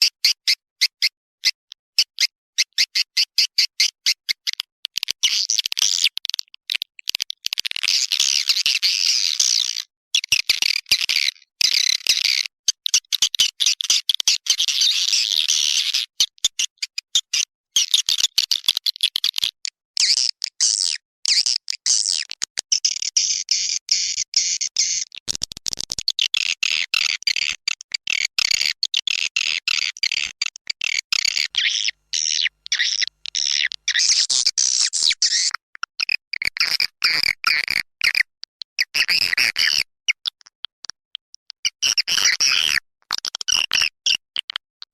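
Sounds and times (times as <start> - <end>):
swiftlets twittering and chirping: 29.1 - 35.6.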